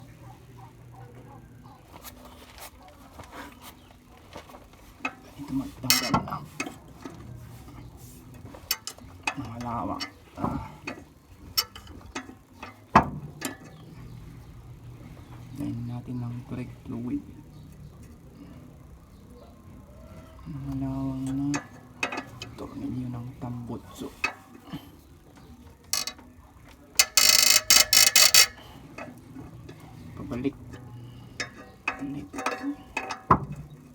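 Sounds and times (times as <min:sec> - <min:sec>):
ratchet wrench clicking: 0:26.0 - 0:26.2, 0:27.0 - 0:28.6
metal hand tools clinking: 0:27.0 - 0:28.7.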